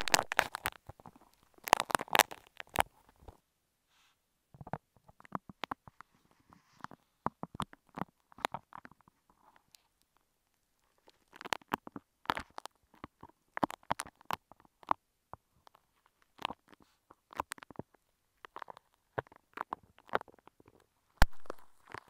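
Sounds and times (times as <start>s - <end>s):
clay squished against microphone: 21.2s - 22.0s.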